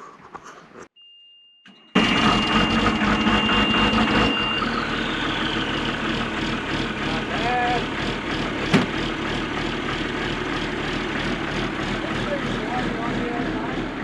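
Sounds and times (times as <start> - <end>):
warning buzzer tone: 1.1 - 5.7
diesel truck engine starting: 1.7 - 14.0.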